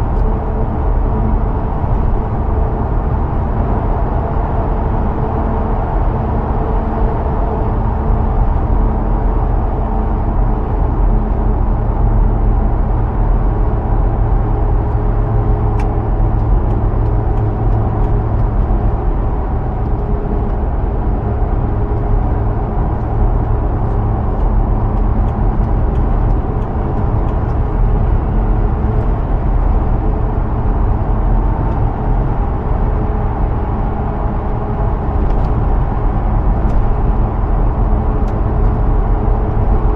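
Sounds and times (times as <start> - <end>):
car engine droning: 0.0 - 39.9
tyre and road noise: 12.5 - 39.9.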